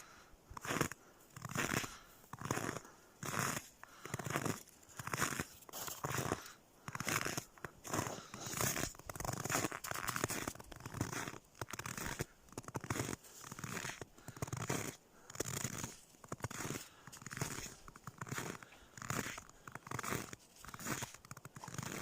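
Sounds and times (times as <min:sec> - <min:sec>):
footsteps crunching in snow: 0:00.0 - 0:22.0.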